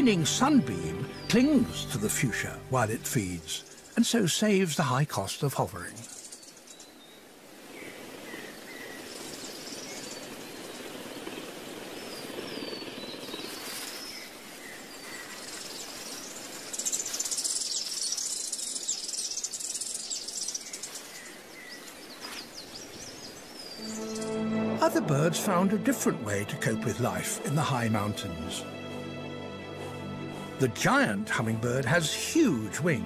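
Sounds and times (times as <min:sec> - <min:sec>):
steady outdoor hiss: 0:00.0 - 0:33.0
high bird chirps: 0:16.7 - 0:24.8.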